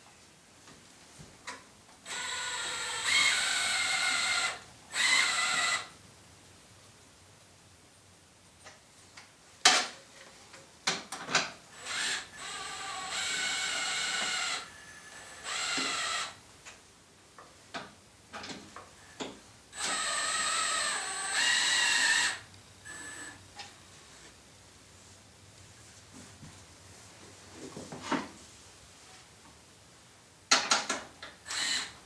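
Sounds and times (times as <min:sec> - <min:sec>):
power drill whining: 0:02.1 - 0:06.0, 0:11.8 - 0:16.4, 0:19.7 - 0:23.4, 0:31.4 - 0:32.0
sharp clicks and knocks: 0:30.5 - 0:31.4.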